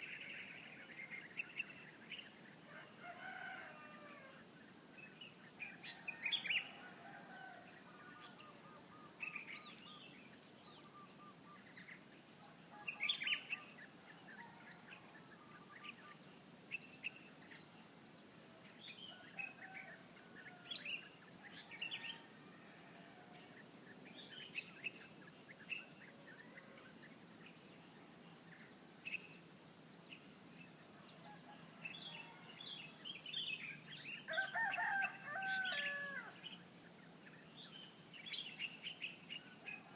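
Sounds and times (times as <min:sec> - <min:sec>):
high-pitched background hiss: 0:00.0 - 0:39.9
rooster crowing: 0:02.7 - 0:04.4, 0:34.3 - 0:36.4.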